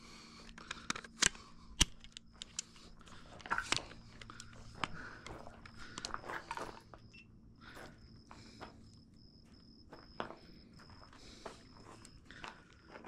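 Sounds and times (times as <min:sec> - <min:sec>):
rifle handling clicks: 0:00.4 - 0:06.6
footsteps on dry dirt: 0:07.7 - 0:13.0.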